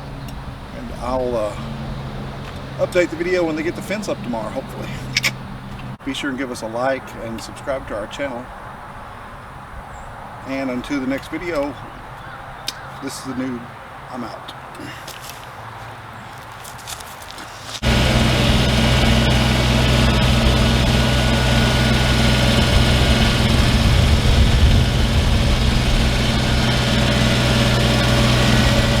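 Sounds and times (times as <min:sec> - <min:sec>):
engine running steadily: 0:17.8 - 0:29.0.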